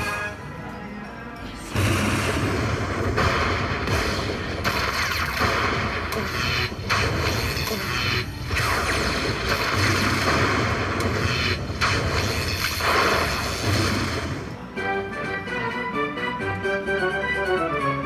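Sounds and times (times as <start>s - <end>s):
slot machine rushing noise: 1.7s - 14.8s.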